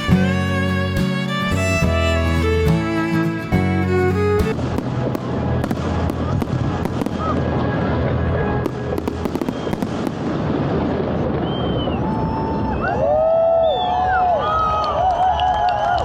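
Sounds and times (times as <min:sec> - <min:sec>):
violin music: 0:00.0 - 0:06.0
fireworks crackling and popping: 0:00.0 - 0:07.8, 0:08.6 - 0:11.5.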